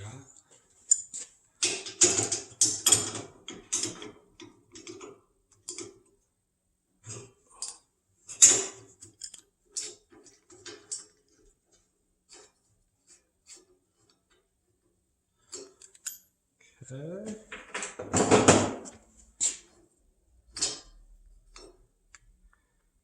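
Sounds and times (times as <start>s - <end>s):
metal chain clicking and clattering: 7.6s - 11.5s, 15.4s - 16.3s.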